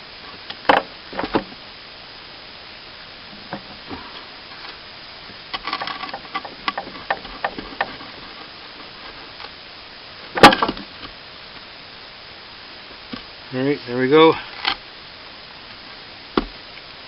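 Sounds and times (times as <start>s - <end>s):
loud metal clank: 10.4s - 10.8s.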